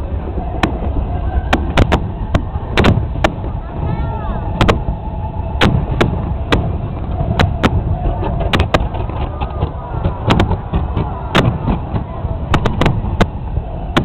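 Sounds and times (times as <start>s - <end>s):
steady low rumble: 0.0s - 14.0s
fireworks bangs: 0.5s - 14.0s
fireworks crackles: 5.6s - 14.0s.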